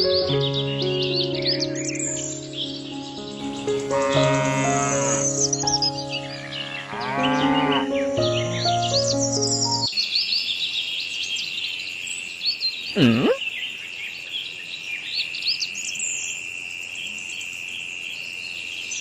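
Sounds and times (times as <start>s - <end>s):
small birds chirping: 0.2s - 16.4s
high insect drone: 3.4s - 8.5s
low animal call: 3.6s - 8.3s, 13.0s - 13.4s.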